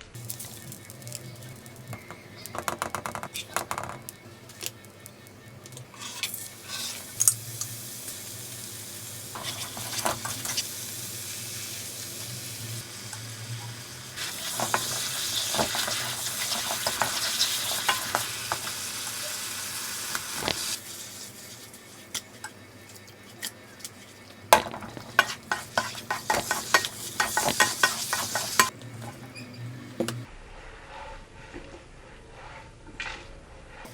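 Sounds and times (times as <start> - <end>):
food sizzling in a hot pan: 0.1 - 29.2
utensil scraping a pan: 0.2 - 11.8, 13.6 - 18.8, 20.4 - 29.4.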